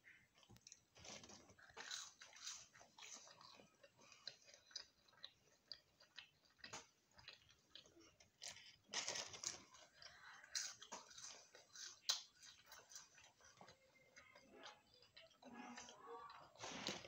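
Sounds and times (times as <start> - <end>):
chewing fries: 0.0 - 17.0.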